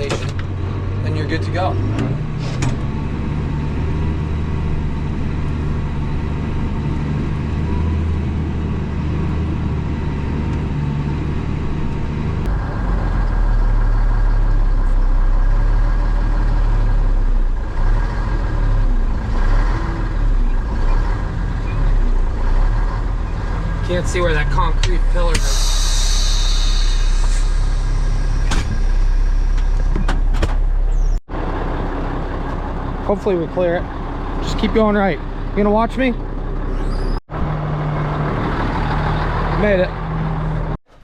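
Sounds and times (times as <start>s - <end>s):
truck diesel engine running: 0.0s - 40.8s.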